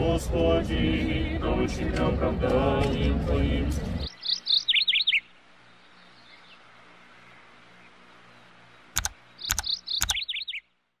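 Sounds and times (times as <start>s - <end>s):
bird chirping: 4.0s - 10.8s
sharp clicks: 9.0s - 10.4s.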